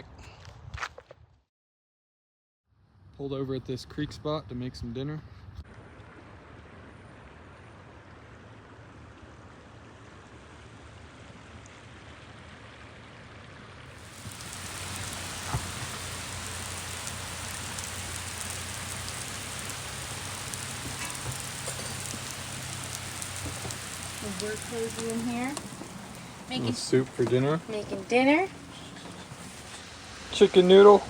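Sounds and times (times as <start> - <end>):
rain on a roof: 13.9 - 31.0.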